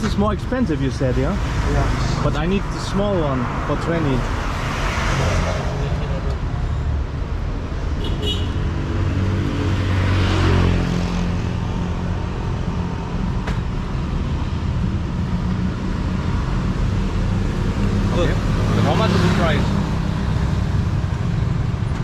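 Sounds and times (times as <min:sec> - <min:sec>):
vehicle engines running: 0:08.8 - 0:22.0.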